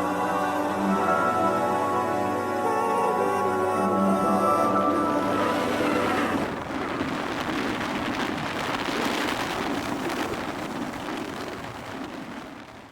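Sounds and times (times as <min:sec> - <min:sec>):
music: 0:00.0 - 0:06.6
steady rain hiss: 0:03.5 - 0:12.9.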